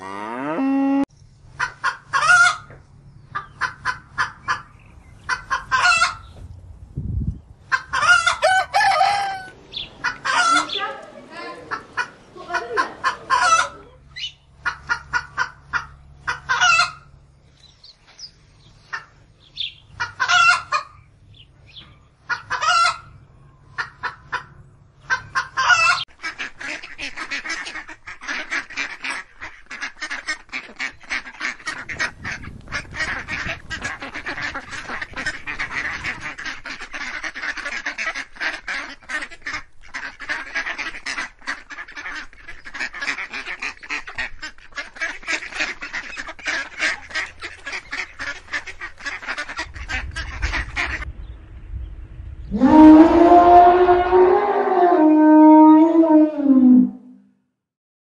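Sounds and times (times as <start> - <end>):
clamour of waterfowl calling: 1.5 - 6.3, 7.7 - 17.2, 18.0 - 21.1, 21.7 - 51.1
geese honking: 1.5 - 6.3, 7.7 - 17.3, 18.8 - 21.0, 22.2 - 51.1.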